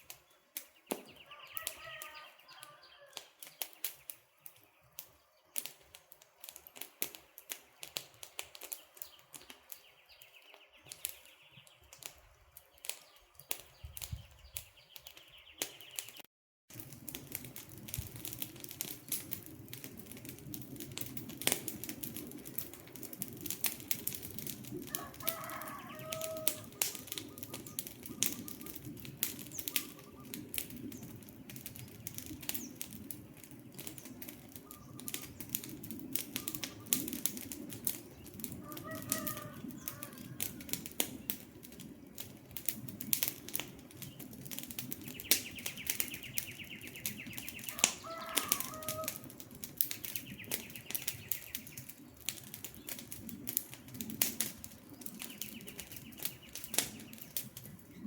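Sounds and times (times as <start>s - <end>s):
campfire crackling and popping: 0.0s - 58.0s
low rumble of flames: 0.0s - 58.0s
bird calling: 0.9s - 3.3s, 25.0s - 28.9s, 29.5s - 30.5s, 34.6s - 35.4s, 36.3s - 37.0s, 45.1s - 49.2s.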